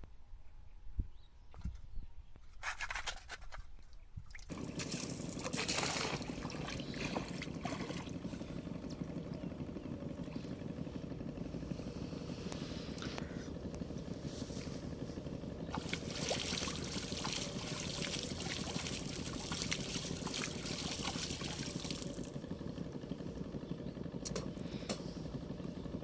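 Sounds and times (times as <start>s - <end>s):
water splashing and trickling: 4.2s - 8.9s, 15.6s - 22.4s.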